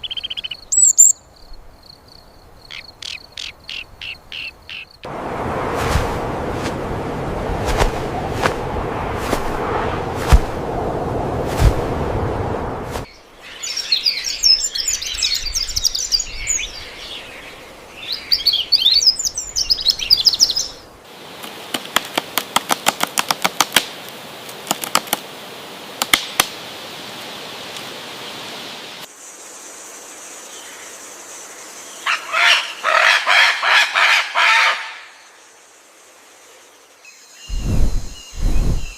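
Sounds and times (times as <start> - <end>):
birds chirping and twittering: 0.0 - 5.1, 13.0 - 21.0, 36.6 - 38.9.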